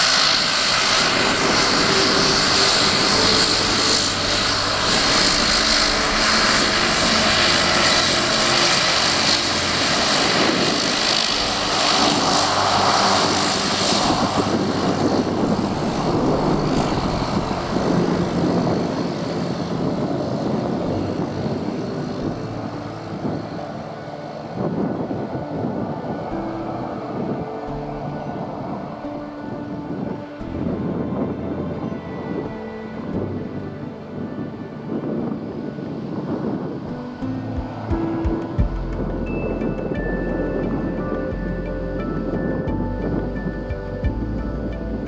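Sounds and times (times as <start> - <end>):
hiss: 0.0 - 21.0
turboprop engines running: 0.0 - 31.5, 35.2 - 45.0.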